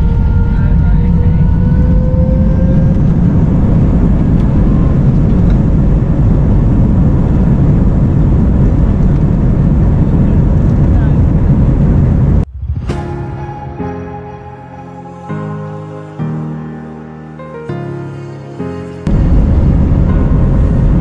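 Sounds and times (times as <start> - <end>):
jet engines at takeoff thrust: 0.0 - 12.7, 19.1 - 21.0.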